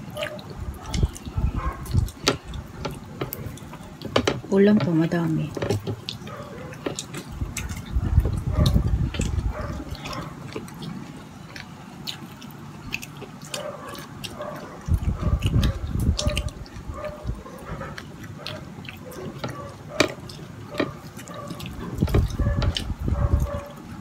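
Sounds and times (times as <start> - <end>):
wet chewing and mouth smacks: 0.0 - 24.0
low rumbling: 7.2 - 10.1.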